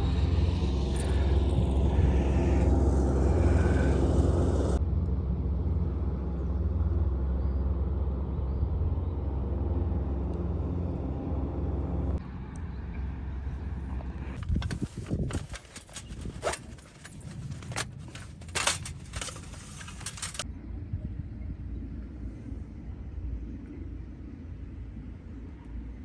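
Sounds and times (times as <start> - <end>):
car engine humming: 0.0 - 4.8, 7.7 - 20.4.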